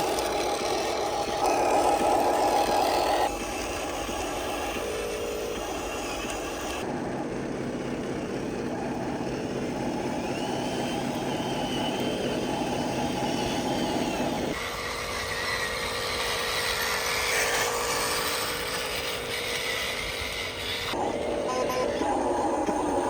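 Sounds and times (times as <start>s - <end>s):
electric motors whining: 0.0s - 23.0s.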